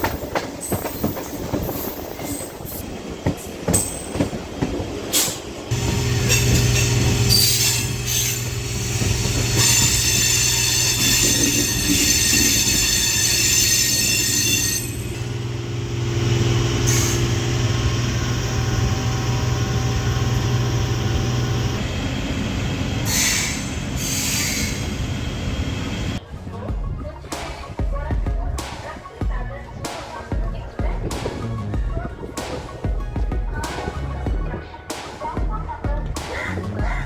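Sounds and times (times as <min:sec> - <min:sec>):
train electric hum: 0:00.0 - 0:26.2
train wheels squealing: 0:06.0 - 0:15.3, 0:16.6 - 0:17.8, 0:23.0 - 0:25.1.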